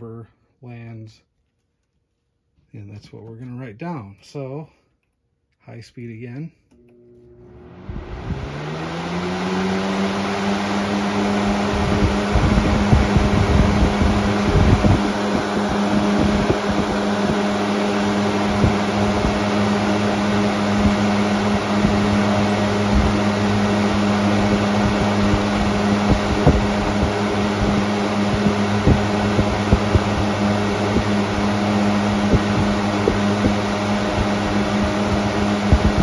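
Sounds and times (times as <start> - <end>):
fan motor hum: 6.7 - 36.0
box fan air rushing: 7.4 - 36.0.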